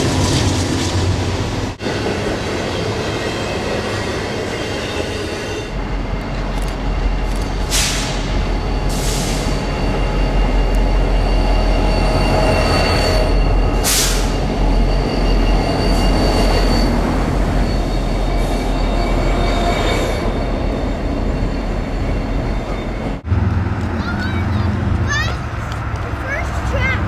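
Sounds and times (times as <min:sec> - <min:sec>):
train rumbling past: 0:00.0 - 0:27.0
wheels squealing on rails: 0:00.0 - 0:27.0.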